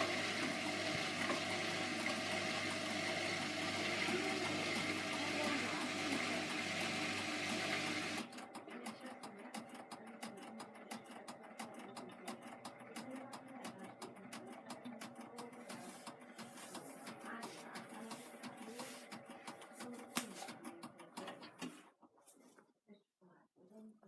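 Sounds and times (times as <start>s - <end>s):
water rushing through washing machine: 0.0s - 8.7s, 15.0s - 21.4s
washing machine ticking and rattling: 0.0s - 21.7s.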